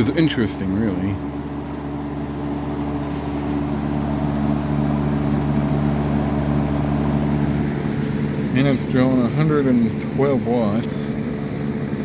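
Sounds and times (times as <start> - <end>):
fan motor hum: 0.0 - 12.0
rush of air from fan: 1.2 - 8.3.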